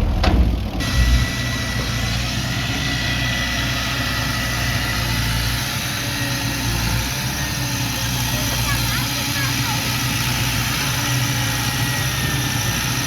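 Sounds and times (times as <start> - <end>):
heavy low thumps: 0.0 - 1.4
diesel machine running: 0.0 - 13.0.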